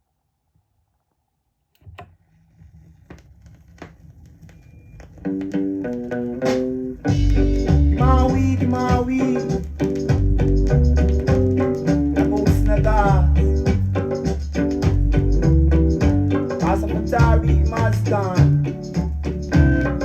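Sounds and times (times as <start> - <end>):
guitar and bass notes: 5.2 - 20.0
reggae band playing: 5.6 - 20.0.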